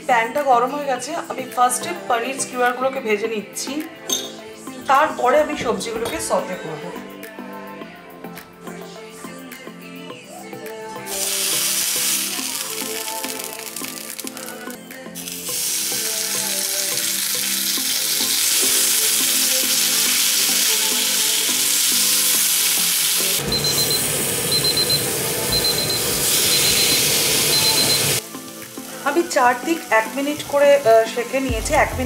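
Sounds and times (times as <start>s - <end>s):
food sizzling in a pan: 11.0s - 31.5s.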